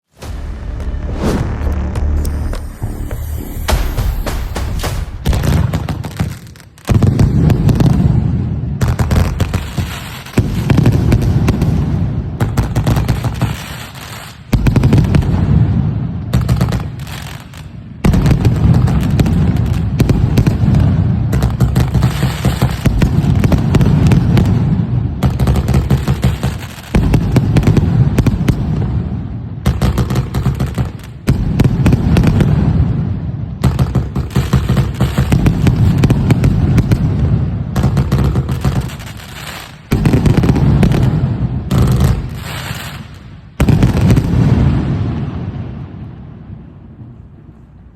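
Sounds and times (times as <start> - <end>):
firecracker string bangs: 0.1 - 7.9.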